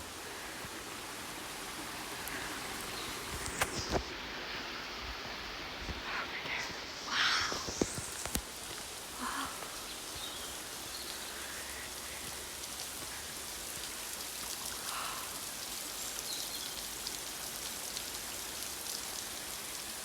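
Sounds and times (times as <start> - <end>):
even hiss: 0.0 - 20.0.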